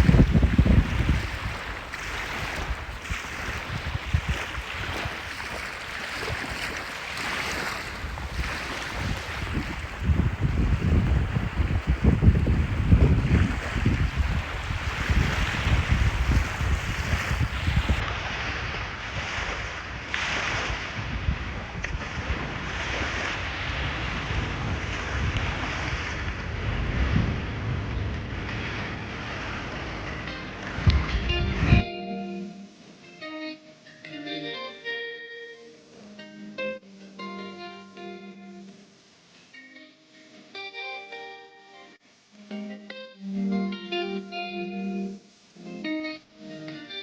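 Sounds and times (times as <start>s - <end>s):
wind buffeting microphone: 0.0s - 31.9s
surf washing: 0.0s - 33.0s.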